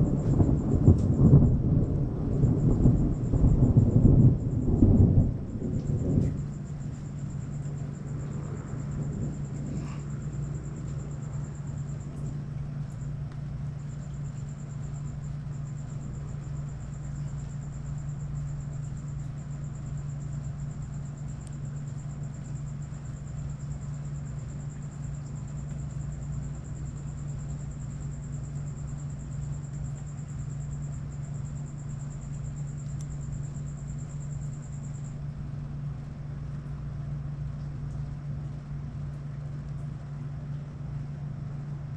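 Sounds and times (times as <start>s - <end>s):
thunder rumble: 0.0s - 16.6s
low hum: 0.0s - 17.7s.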